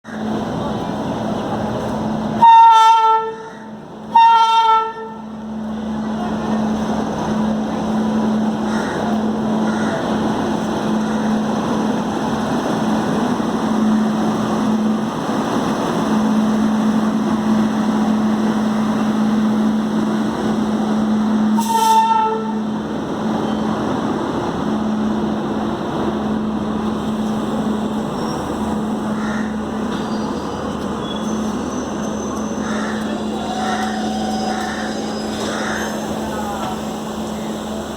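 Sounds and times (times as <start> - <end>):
train running with low hum: 0.1 - 37.9
locomotive horn blasts: 2.4 - 3.5, 4.1 - 5.3, 21.5 - 22.8
wheels rumbling: 5.0 - 37.9.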